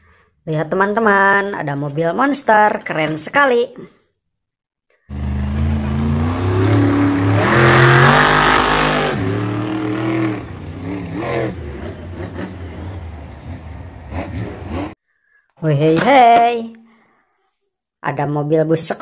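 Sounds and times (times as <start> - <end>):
truck engine revving: 5.1 - 15.0.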